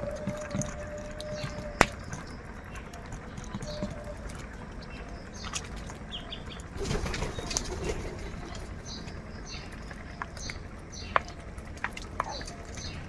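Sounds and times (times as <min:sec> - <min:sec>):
bird wings flapping: 0:06.8 - 0:08.3.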